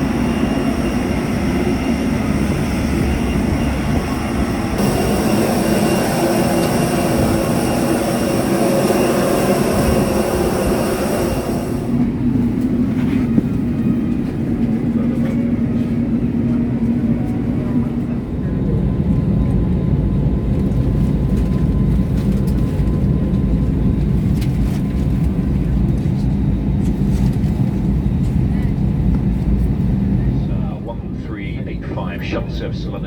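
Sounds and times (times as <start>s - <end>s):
high whine: 0.0s - 12.5s
low machinery rumble: 0.0s - 24.3s, 27.4s - 33.0s.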